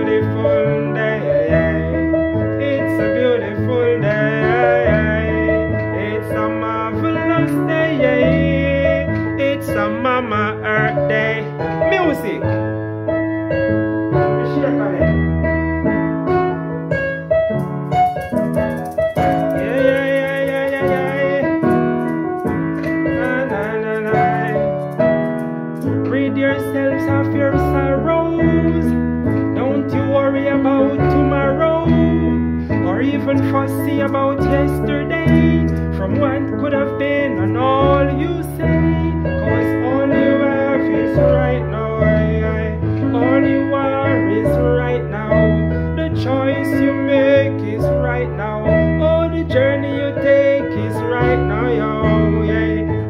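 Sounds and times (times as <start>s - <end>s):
keyboard playing held chords: 0.0s - 53.0s
person chanting: 18.8s - 22.0s, 22.8s - 24.7s.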